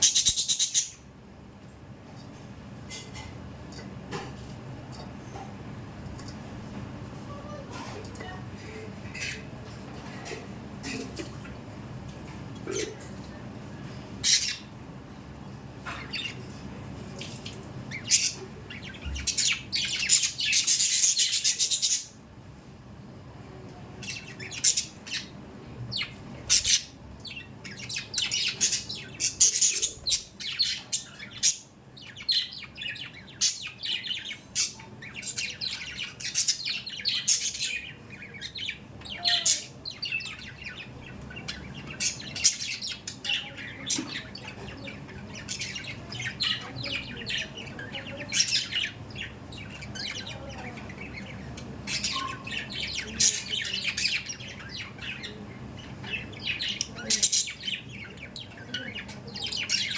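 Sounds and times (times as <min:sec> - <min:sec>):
budgerigars chattering: 0:00.0 - 0:01.0, 0:25.9 - 0:59.9.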